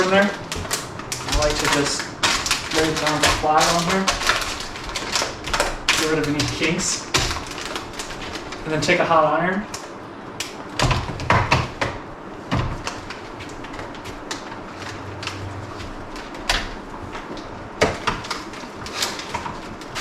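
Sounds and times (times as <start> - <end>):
knocks and plastic bag crinkles: 0.0 - 9.0, 10.6 - 20.0.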